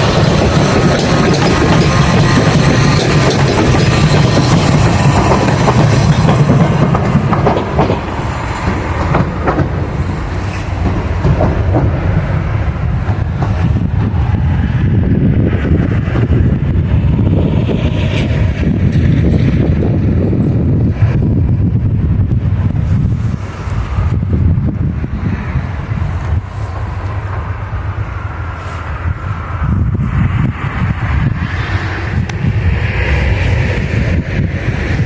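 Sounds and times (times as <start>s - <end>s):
wheels clicking over rail joints: 0.0s - 30.6s
train rumbling on rails: 0.0s - 35.0s.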